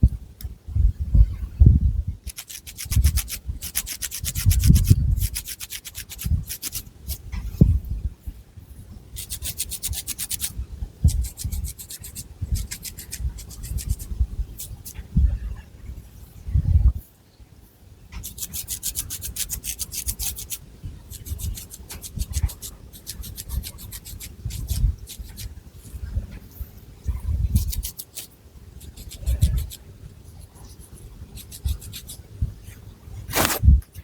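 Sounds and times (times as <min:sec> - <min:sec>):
fingernails scratching hair: 0:02.3 - 0:07.2, 0:09.2 - 0:10.5, 0:11.1 - 0:15.0, 0:18.2 - 0:25.5, 0:27.5 - 0:29.8, 0:30.7 - 0:32.2, 0:33.3 - 0:33.7.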